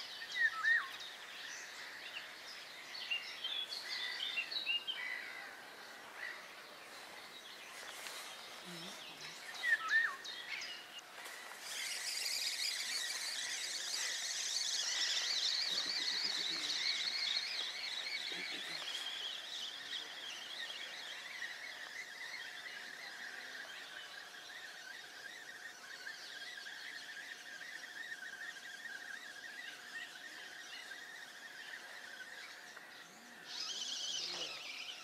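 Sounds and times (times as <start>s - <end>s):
birds singing: 0.0s - 35.0s
high bird chirping chorus: 0.0s - 35.0s.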